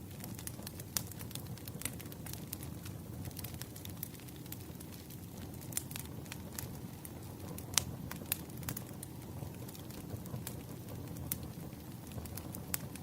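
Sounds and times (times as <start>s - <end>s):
firewood crackling and popping: 0.0s - 13.0s
low rumble of fire: 0.0s - 13.0s.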